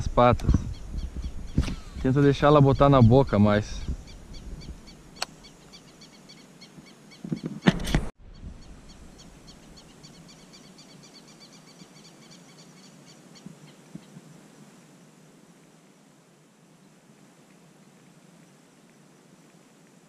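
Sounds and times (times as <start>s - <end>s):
small birds chirping: 0.1s - 7.7s, 8.3s - 14.3s.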